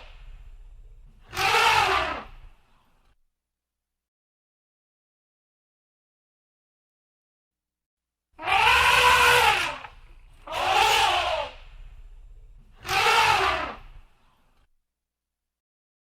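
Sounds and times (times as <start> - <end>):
elephant trumpeting: 0.0 - 2.5, 8.4 - 14.1.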